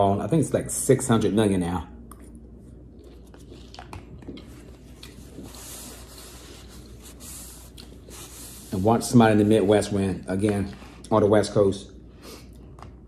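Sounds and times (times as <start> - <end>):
wet chewing: 2.1 - 5.5.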